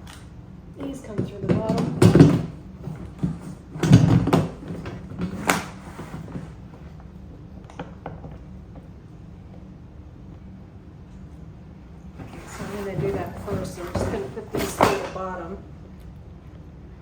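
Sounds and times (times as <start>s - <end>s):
cart parts rattling and scraping: 0.8s - 6.6s, 12.2s - 15.6s.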